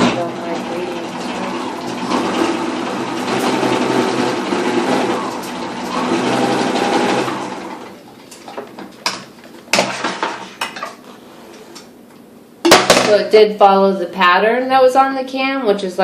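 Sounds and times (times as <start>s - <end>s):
sewing machine running: 0.0s - 8.0s.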